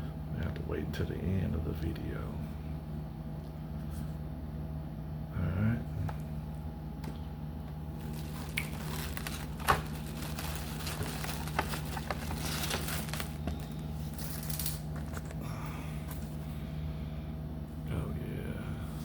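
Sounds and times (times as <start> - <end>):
low hum: 0.0 - 19.0
plastic and cardboard crinkling: 7.9 - 15.4.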